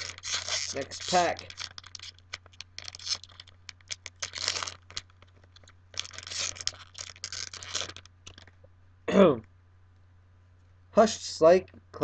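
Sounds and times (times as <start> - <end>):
foil wrapper tearing and crinkling: 0.0 - 8.5.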